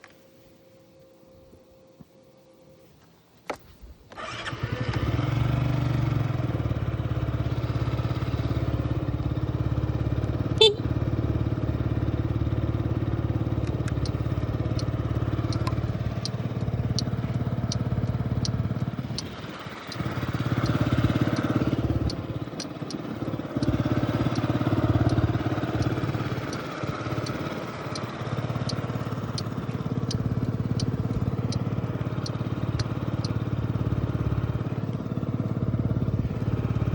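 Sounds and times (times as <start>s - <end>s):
scooter engine starting and idling: 4.1s - 36.9s
faint regular ticking: 11.5s - 35.2s.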